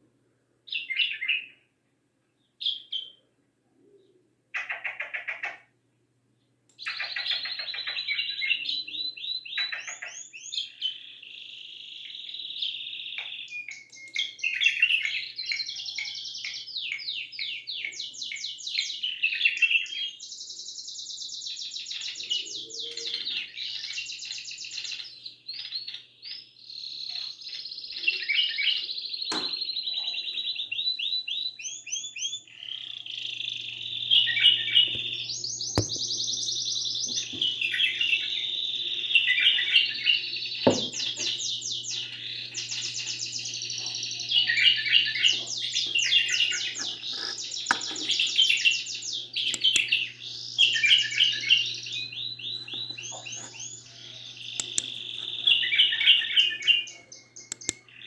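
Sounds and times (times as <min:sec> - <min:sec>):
songbirds trilling: 0:04.6 - 0:05.8, 0:06.7 - 0:58.0
faint low hum: 0:32.5 - 0:58.0
sharp clicks: 0:35.8 - 0:36.5, 0:49.5 - 0:50.0, 0:54.6 - 0:55.5, 0:57.4 - 0:57.9.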